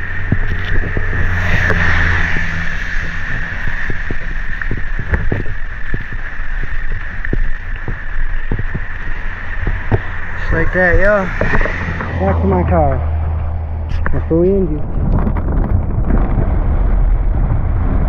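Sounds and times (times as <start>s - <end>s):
pouring rain: 0.0s - 10.5s
sharp taps: 0.2s - 12.3s.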